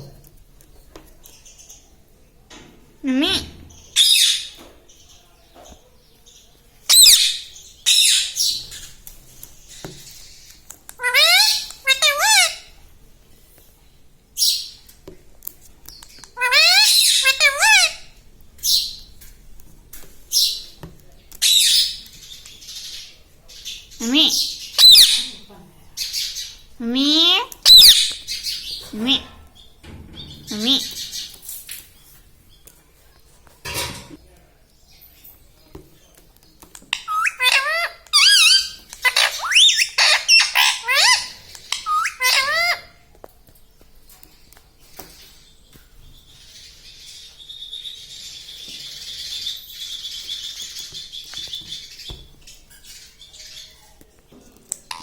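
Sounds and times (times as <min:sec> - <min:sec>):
parakeet pitched calls: 0:03.2 - 0:04.6, 0:06.9 - 0:08.9, 0:11.0 - 0:12.7, 0:16.4 - 0:18.9, 0:23.6 - 0:25.4, 0:26.0 - 0:29.4, 0:36.9 - 0:43.0
parakeet squawking: 0:06.9 - 0:08.9, 0:11.0 - 0:12.7, 0:16.4 - 0:18.1, 0:24.0 - 0:25.4, 0:26.1 - 0:29.4, 0:36.9 - 0:43.0.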